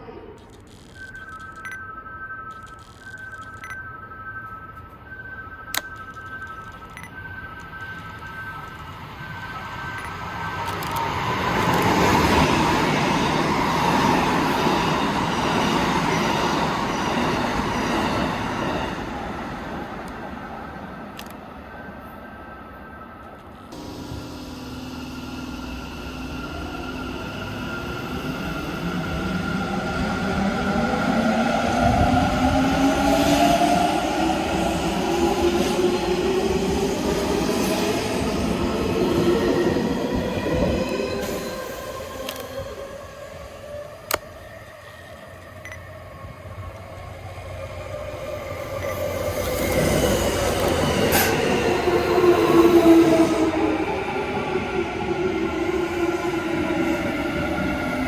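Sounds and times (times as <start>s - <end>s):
train wheels squealing: 2.5s - 19.2s
electric train rumbling: 2.6s - 58.0s
humming tones: 23.8s - 31.1s.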